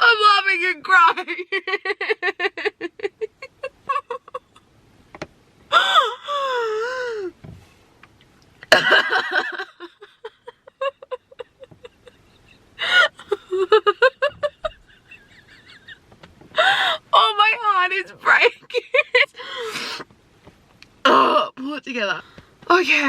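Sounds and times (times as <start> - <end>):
woman sobbing and gasping: 1.2 - 4.6, 5.7 - 7.4, 8.7 - 20.1
woman wailing: 5.7 - 7.3, 16.6 - 19.7.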